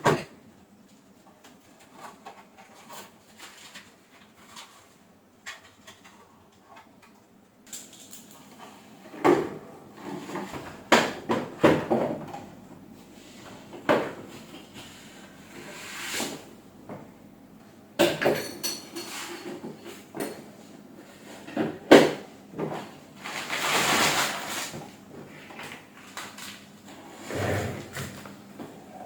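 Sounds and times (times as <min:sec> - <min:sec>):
objects knocking and clattering: 0:09.2 - 0:12.5.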